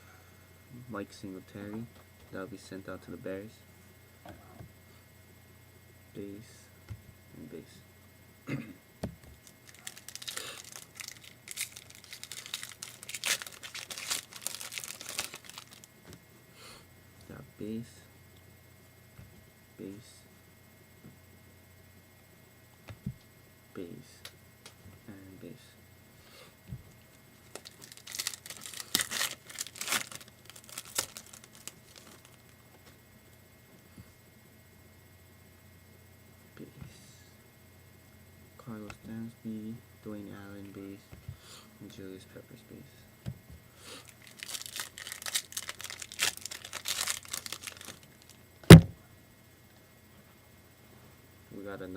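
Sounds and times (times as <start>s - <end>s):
foil wrapper crinkling: 9.4s - 15.9s, 27.4s - 32.6s, 44.0s - 48.4s
sharp crackles: 27.4s - 32.5s, 44.2s - 48.3s.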